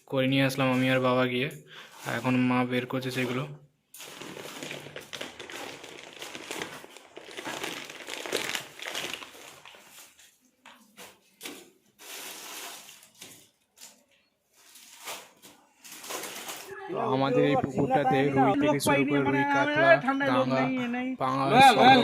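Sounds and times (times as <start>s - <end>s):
plastic bags crinkling: 4.0s - 17.2s.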